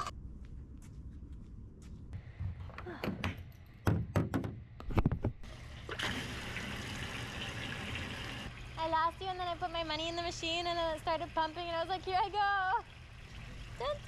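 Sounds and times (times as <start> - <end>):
knocks and clunks: 2.4 - 5.4.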